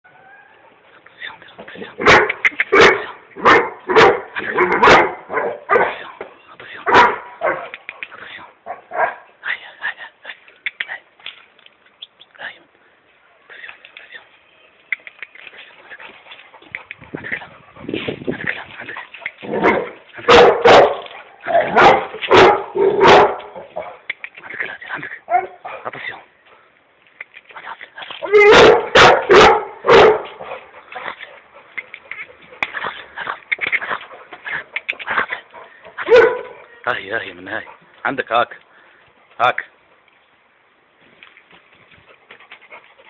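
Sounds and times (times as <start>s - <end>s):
dog barking: 2.0s - 6.0s, 6.9s - 7.7s, 8.7s - 9.3s, 19.5s - 24.1s, 25.3s - 25.9s, 28.3s - 30.6s, 36.0s - 36.7s.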